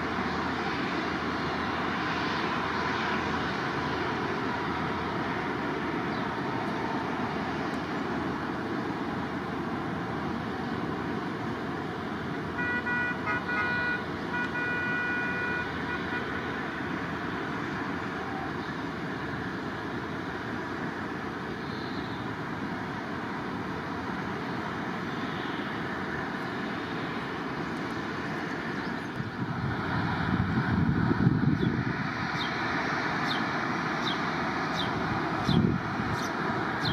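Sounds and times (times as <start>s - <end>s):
jet aircraft engine noise: 0.0s - 36.9s
horn toots and blast: 12.6s - 16.5s.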